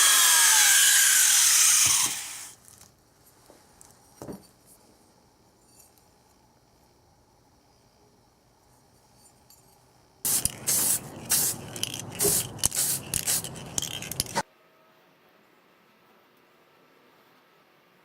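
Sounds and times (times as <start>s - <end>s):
spray paint can hissing bursts: 10.3s - 14.4s.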